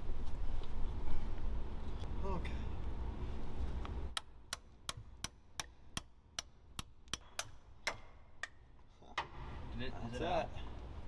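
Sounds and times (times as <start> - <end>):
hammer striking metal socket: 4.2 - 8.6.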